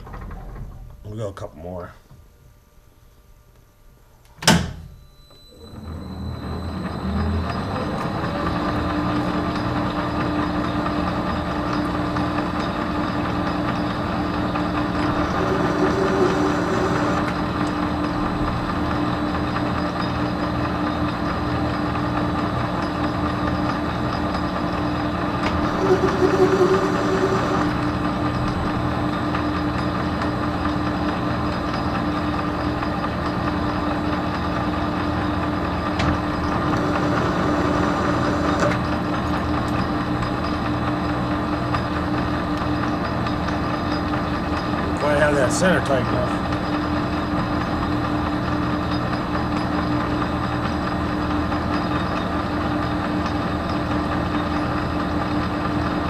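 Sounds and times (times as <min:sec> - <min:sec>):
metal lathe gears humming: 0:05.6 - 0:20.5, 0:24.2 - 0:30.4, 0:35.6 - 0:40.8.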